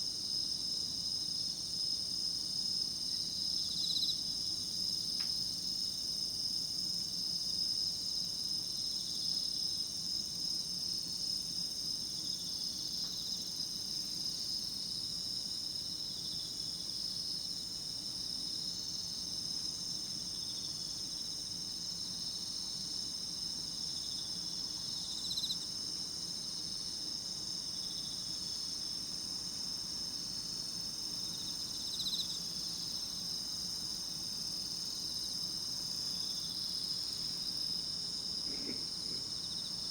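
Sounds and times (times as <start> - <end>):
louder insect calls: 31.2 - 39.9
insects trilling: 34.4 - 39.9.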